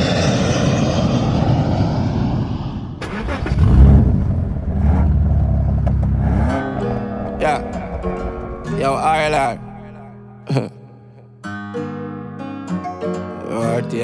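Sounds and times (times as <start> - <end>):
engine running: 0.0 - 10.4
deep low rumble: 0.0 - 10.6.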